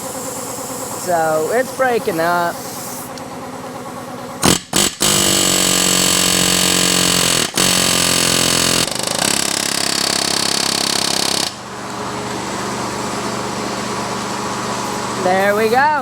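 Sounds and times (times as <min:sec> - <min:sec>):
pneumatic air hammer hammering: 0:04.3 - 0:12.4, 0:14.8 - 0:16.0.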